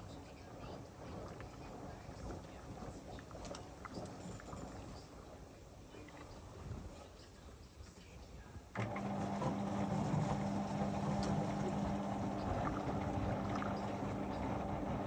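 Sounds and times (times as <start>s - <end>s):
washing machine humming and rushing: 0.0s - 7.2s, 8.7s - 15.0s.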